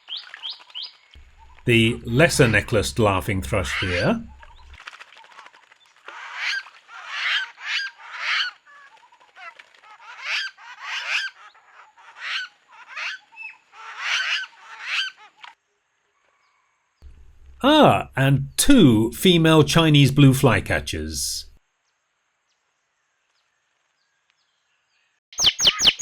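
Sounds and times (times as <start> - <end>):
birds calling in bursts: 0.1 - 4.8, 25.4 - 26.0.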